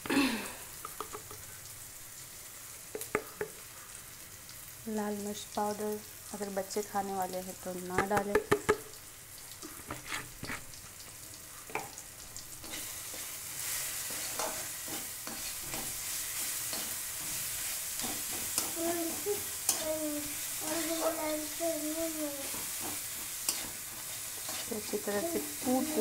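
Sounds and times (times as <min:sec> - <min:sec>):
food sizzling in oil: 0:00.0 - 0:26.0
metal spatula scraping pan: 0:09.8 - 0:10.6, 0:12.6 - 0:19.8, 0:22.4 - 0:26.0.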